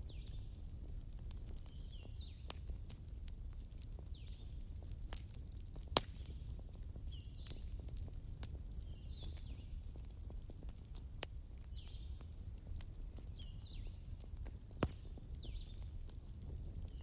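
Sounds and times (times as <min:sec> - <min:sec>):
burning logs popping: 0:00.0 - 0:17.0
wood fire crackling: 0:00.0 - 0:17.0.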